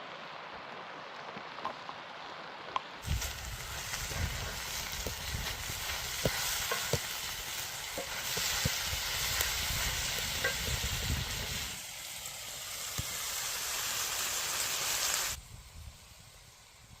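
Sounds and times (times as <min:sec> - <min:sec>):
fire pops and crackles: 0:02.8 - 0:15.4
food sizzling over a fire: 0:03.0 - 0:17.0.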